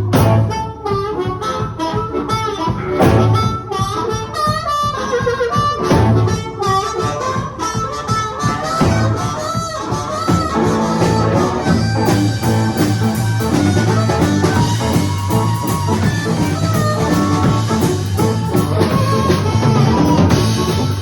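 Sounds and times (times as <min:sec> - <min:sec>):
bass line: 0:00.0 - 0:21.0
guitar melody: 0:00.0 - 0:21.0
harmonica: 0:00.0 - 0:21.0.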